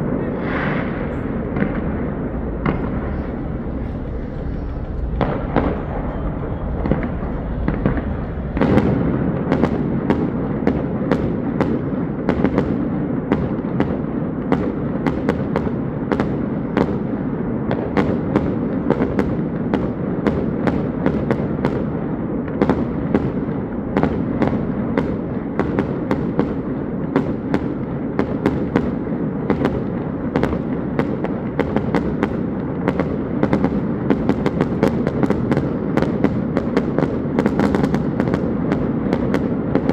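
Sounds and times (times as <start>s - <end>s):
steady rumble: 0.0s - 10.1s
fireworks bangs and crackles: 0.0s - 39.9s.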